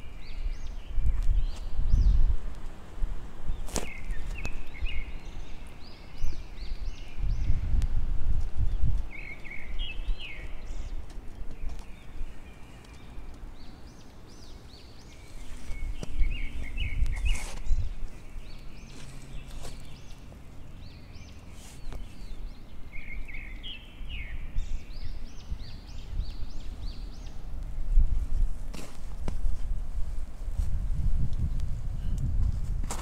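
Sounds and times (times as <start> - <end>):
small birds chirping: 0.0 - 32.4
footsteps in snow: 15.1 - 20.2, 21.5 - 22.4, 28.0 - 33.0.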